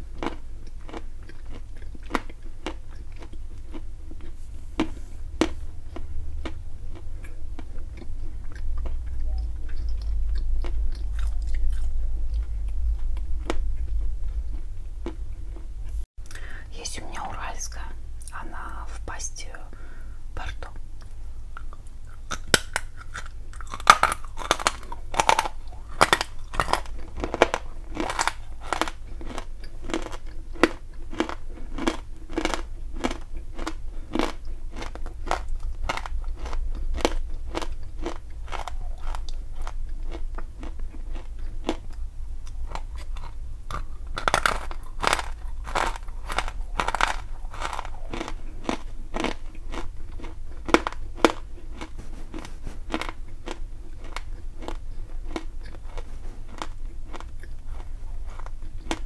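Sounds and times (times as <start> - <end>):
grinding chews: 0.0 - 16.5, 20.4 - 59.0
crunching chalk in mouth: 20.4 - 59.0.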